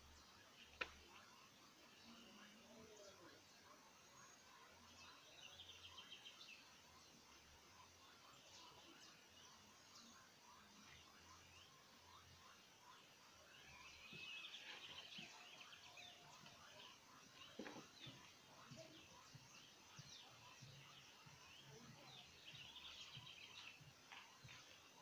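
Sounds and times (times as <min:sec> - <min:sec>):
faint birds chirping: 0:00.0 - 0:25.0
faint knock: 0:17.5 - 0:18.2.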